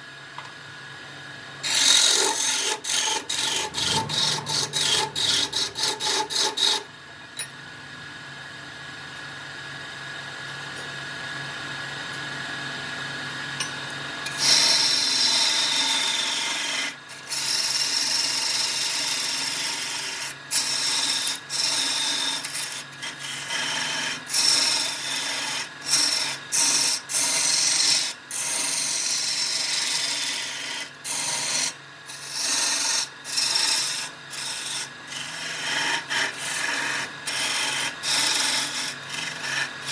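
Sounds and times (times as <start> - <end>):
tool scraping wood on lathe: 1.6 - 6.9, 14.3 - 39.9.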